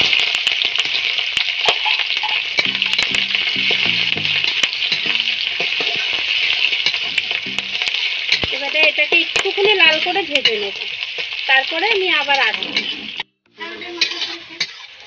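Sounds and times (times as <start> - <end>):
onion and garlic sizzling in oil: 0.0 - 15.0
metal spatula scraping a pan: 12.3 - 15.0.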